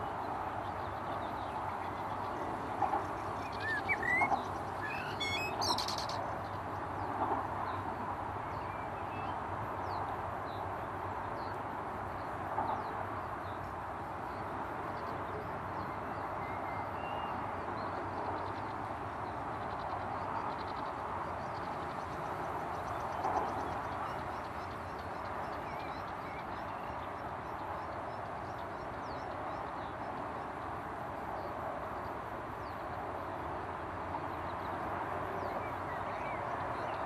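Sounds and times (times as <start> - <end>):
wild birds chirping: 0.0 - 33.4, 34.2 - 37.0
steady background noise: 0.0 - 37.0.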